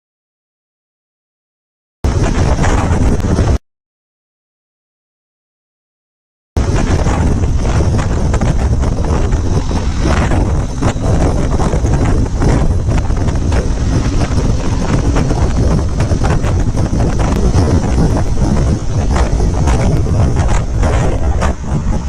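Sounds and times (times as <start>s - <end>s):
wind buffeting microphone: 2.1s - 3.6s, 6.6s - 22.0s.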